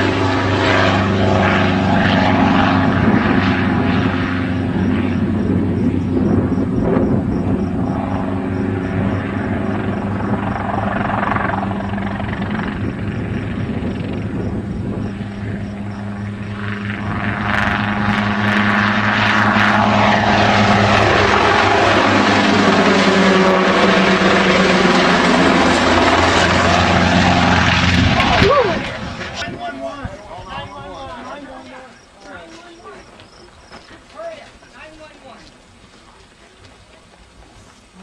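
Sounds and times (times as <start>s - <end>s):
low engine hum: 0.0s - 29.4s
helicopter rotor beating: 0.0s - 35.4s.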